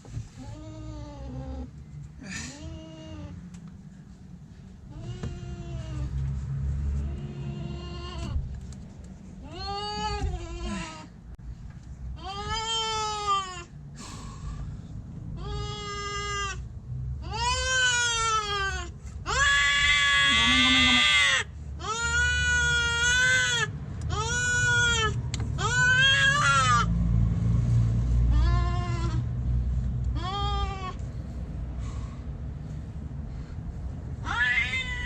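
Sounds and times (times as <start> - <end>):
cat yowling in distress: 17.3 - 26.9, 34.2 - 35.0.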